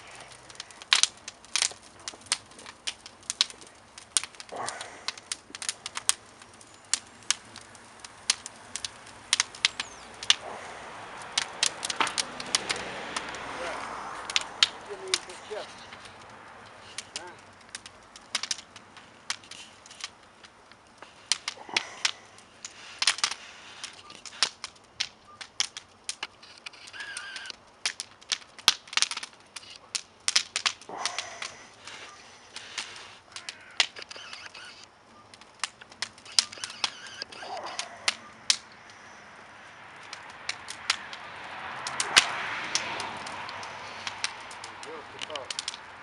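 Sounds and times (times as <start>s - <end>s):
steady hiss: 0.0s - 25.2s, 29.3s - 40.0s
wood fire crackling: 0.0s - 46.0s.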